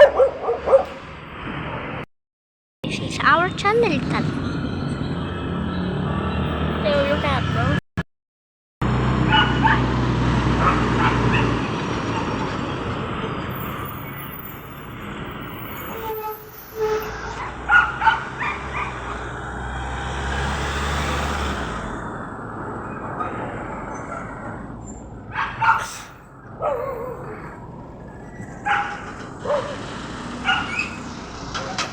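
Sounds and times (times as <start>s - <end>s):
dog barking: 0.0s - 1.0s, 10.6s - 11.5s, 17.4s - 19.2s, 25.3s - 25.9s, 26.6s - 27.0s, 28.6s - 29.8s, 30.4s - 30.9s
heavy vehicle engine running: 8.8s - 15.8s, 27.6s - 31.9s.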